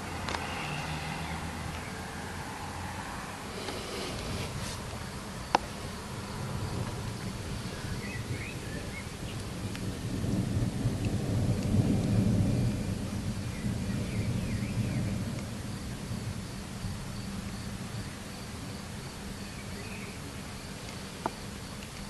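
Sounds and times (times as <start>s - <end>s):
rain: 0.0s - 22.0s
thunder rumbling: 4.2s - 19.3s.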